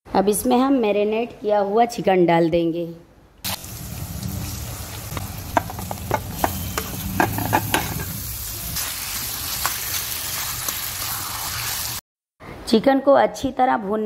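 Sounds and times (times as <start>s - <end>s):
chicken sizzling in hot oil: 3.5s - 12.0s.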